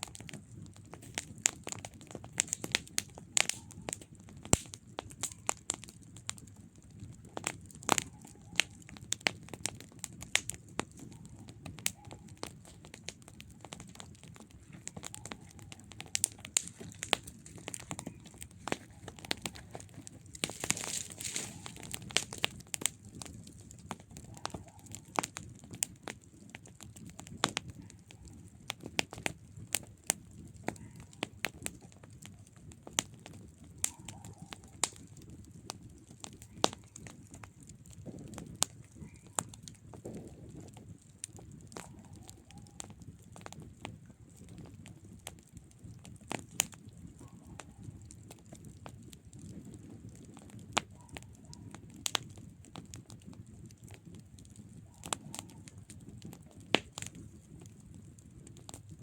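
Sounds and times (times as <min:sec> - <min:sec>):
campfire crackling and popping: 0:00.0 - 0:59.0
rush of flames: 0:07.4 - 0:32.4, 0:33.0 - 0:47.3
hiss from fire: 0:16.1 - 0:23.0.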